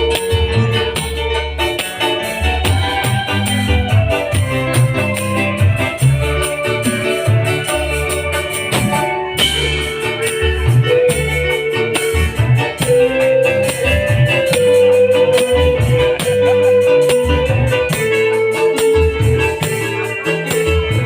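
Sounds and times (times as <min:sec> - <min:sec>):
drums and bass beat: 0:00.0 - 0:21.0
electronic organ melody: 0:00.0 - 0:21.0.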